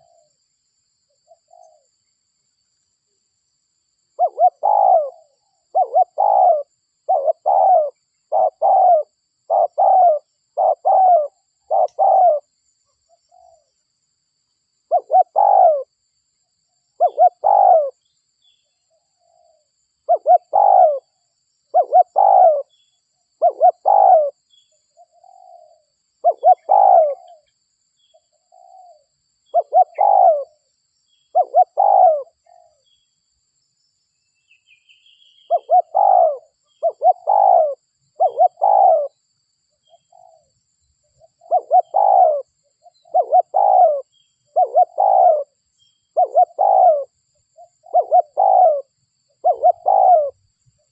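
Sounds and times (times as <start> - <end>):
dove cooing: 0.0 - 0.3, 1.3 - 1.9, 4.2 - 12.5, 14.9 - 15.9, 17.0 - 18.0, 19.2 - 22.8, 23.4 - 24.4, 25.0 - 27.5, 28.4 - 30.6, 31.3 - 32.8, 35.5 - 39.2, 39.8 - 40.5, 41.2 - 50.9.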